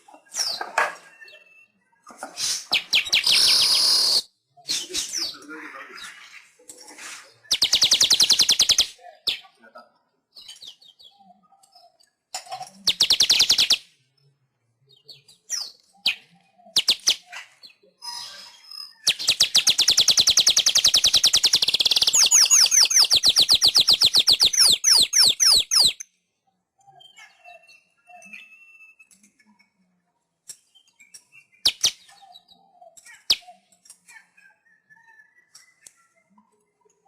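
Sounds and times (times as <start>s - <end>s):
weaver bird singing: 2.8s - 5.4s, 12.8s - 13.8s, 15.0s - 26.0s, 26.8s - 29.2s.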